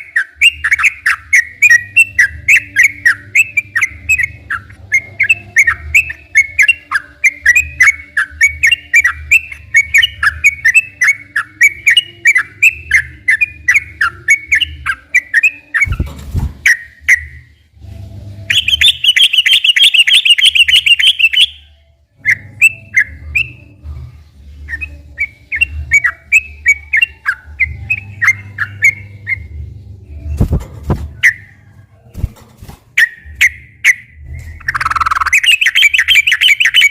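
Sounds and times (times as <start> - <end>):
bird chirping and trilling: 0.0 - 17.7, 18.5 - 23.8, 24.4 - 36.9
faint low hum: 21.2 - 36.9.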